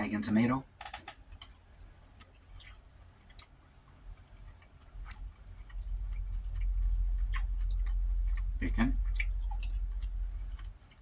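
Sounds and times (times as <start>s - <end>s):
chewing with mouth clicks: 2.2s - 11.0s
low rumble: 4.9s - 10.8s.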